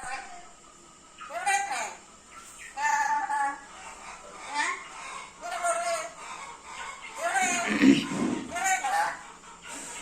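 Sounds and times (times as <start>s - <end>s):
parrot calling: 1.2s - 2.0s, 2.7s - 9.2s.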